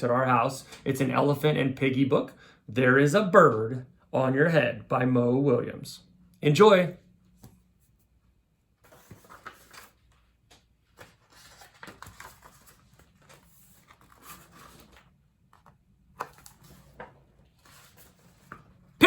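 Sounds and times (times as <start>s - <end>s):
book pages turning: 7.2s - 19.0s.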